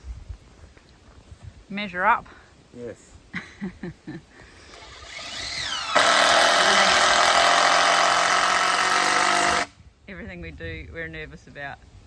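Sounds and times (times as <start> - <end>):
power tool whining: 4.7 - 9.8.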